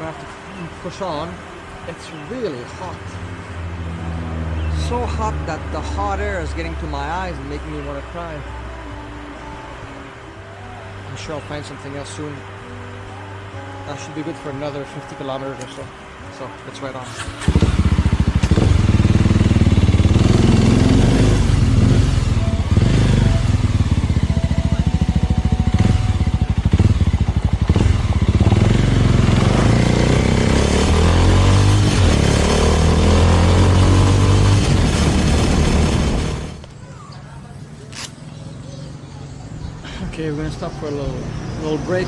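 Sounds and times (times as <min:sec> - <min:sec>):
motorcycle engine running: 0:17.2 - 0:36.6.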